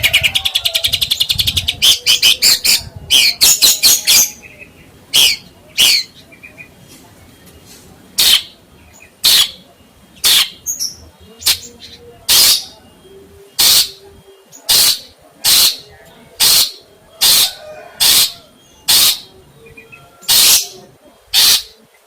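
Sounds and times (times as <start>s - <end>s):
bird harsh hissing call: 14.7s - 15.8s, 16.4s - 19.3s, 20.3s - 21.8s.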